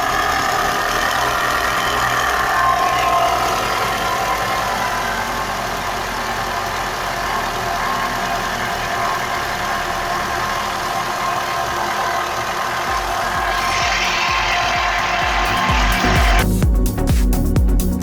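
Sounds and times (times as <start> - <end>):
car engine idling with rapid knock: 0.0 - 17.8.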